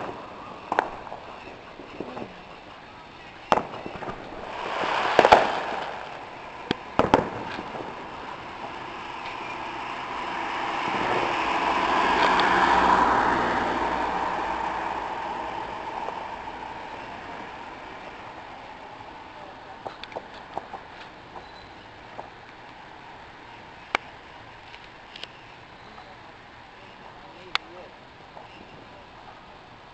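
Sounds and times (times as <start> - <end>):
fireworks bangs: 0.0 - 22.4
broad rushing noise: 0.0 - 25.1.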